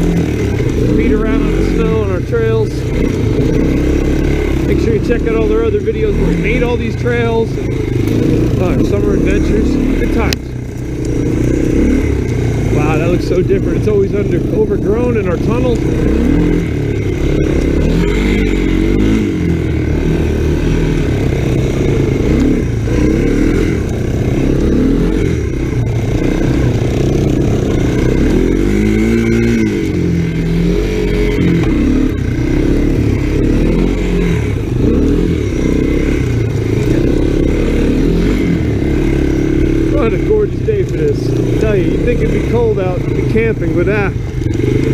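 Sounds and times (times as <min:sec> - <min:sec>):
three-wheeler engine revving: 0:00.0 - 0:44.9.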